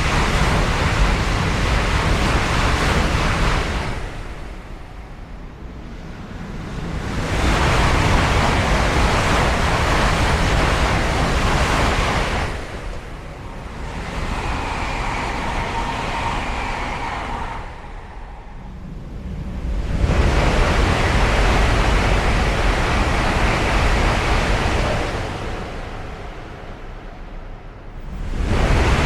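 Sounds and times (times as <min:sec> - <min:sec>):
train passing at speed: 0:00.0 - 0:29.0.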